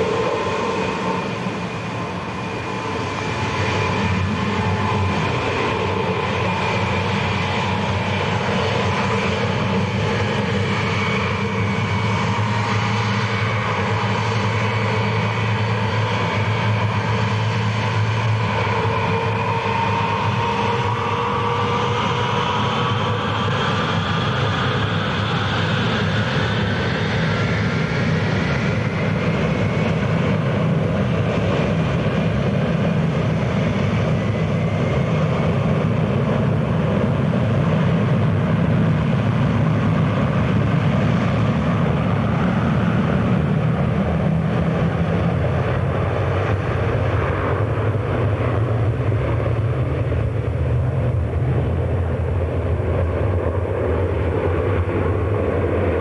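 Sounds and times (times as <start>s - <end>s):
jet engine whine rising: 0.0s - 56.0s.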